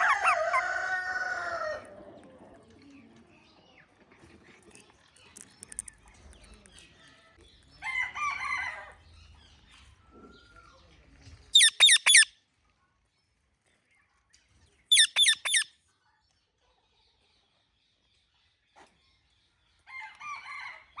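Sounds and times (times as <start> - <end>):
parrot screeching: 0.0 - 1.8, 11.6 - 12.3, 14.9 - 15.7.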